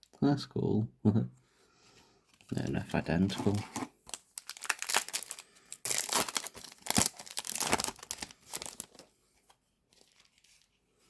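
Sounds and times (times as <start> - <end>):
foil wrapper tearing and crinkling: 4.0 - 9.0.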